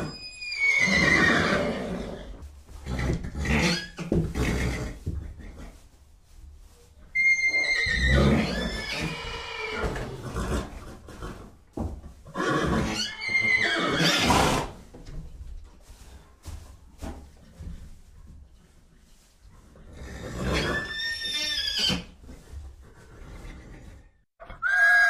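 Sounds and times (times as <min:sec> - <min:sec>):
horse whinnying: 0:00.0 - 0:05.0, 0:07.1 - 0:11.4, 0:12.3 - 0:14.8, 0:20.0 - 0:22.2, 0:24.4 - 0:25.0.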